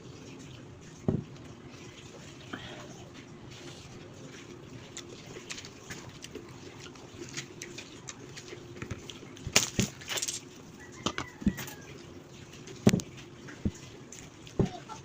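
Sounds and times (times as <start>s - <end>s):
faint steady hum: 0.0s - 15.0s
wet chewing mouth clicks: 4.4s - 9.3s.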